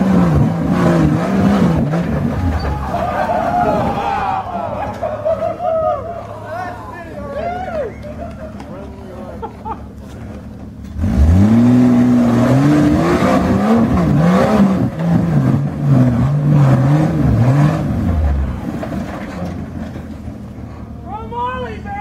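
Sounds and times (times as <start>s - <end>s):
engine revving hard: 0.0s - 4.0s, 10.9s - 18.6s.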